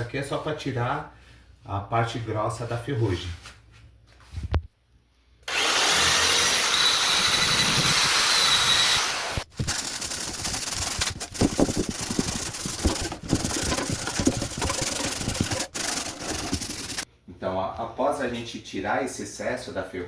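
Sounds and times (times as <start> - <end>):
electric drill motor whine: 5.5 - 17.0
wire brush scratching metal: 9.5 - 17.0.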